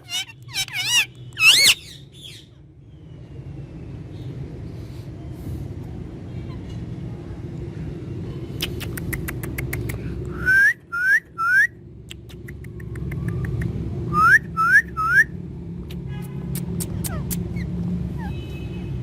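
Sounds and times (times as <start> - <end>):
parrot whistling: 0.0 - 1.9, 14.1 - 15.3
parrot clicks: 8.6 - 10.0.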